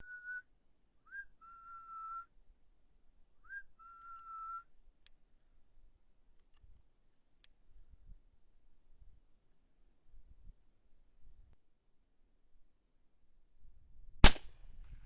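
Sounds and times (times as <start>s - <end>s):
person whistling: 0.0s - 0.4s, 1.1s - 2.3s, 3.5s - 4.6s.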